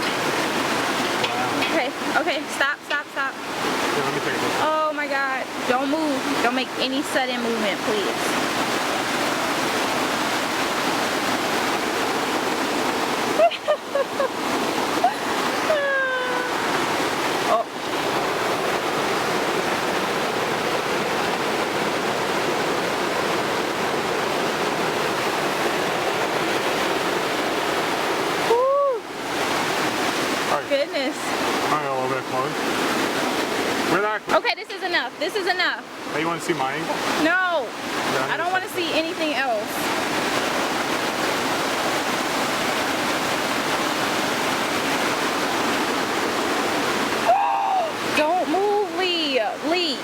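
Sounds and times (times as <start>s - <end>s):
whitewater river rushing: 0.0s - 50.0s.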